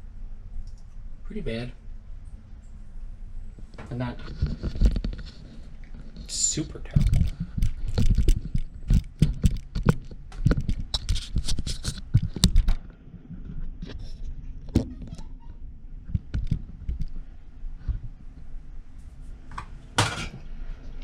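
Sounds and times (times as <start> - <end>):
objects knocking and scraping: 6.9 - 15.2, 19.5 - 20.4.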